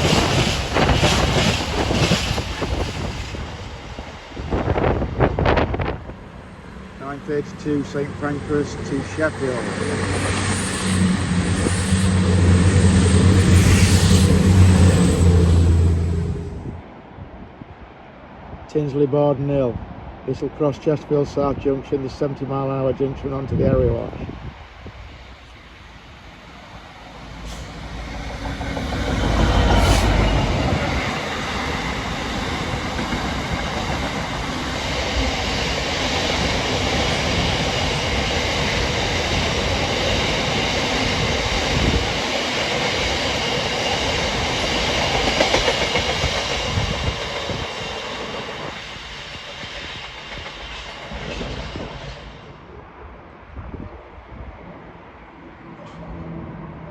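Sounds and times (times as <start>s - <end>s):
train wheels clattering: 0.0s - 3.2s, 27.2s - 52.4s
locomotive engine: 6.0s - 17.0s, 26.0s - 48.8s.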